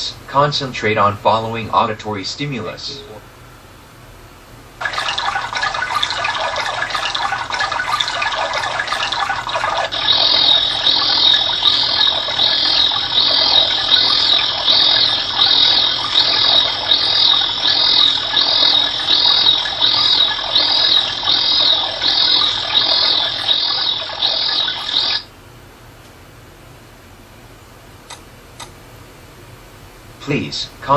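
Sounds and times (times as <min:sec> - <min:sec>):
running water: 0:04.8 - 0:25.3
high repeated chirping calls: 0:05.2 - 0:25.2.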